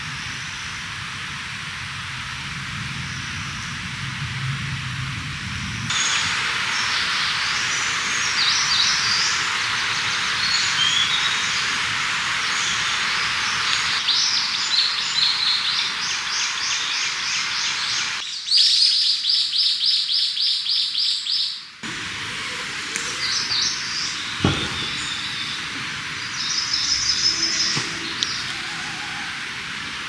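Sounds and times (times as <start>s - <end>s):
steady background hiss: 5.6s - 19.0s, 21.6s - 30.0s
small birds singing: 5.9s - 30.0s
short knock: 24.4s - 25.4s.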